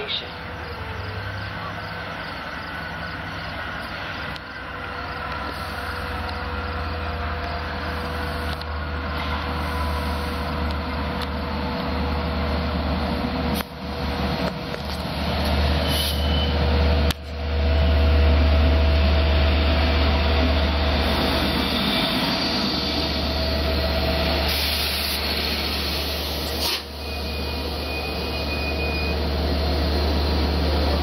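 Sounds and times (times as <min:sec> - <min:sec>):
diesel locomotive engine rumbling: 0:00.0 - 0:31.0.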